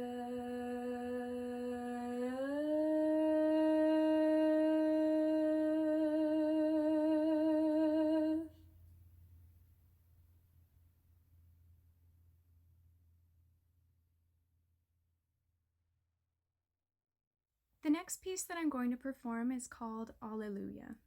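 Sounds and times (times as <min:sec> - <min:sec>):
person singing long note: 0:00.0 - 0:08.5.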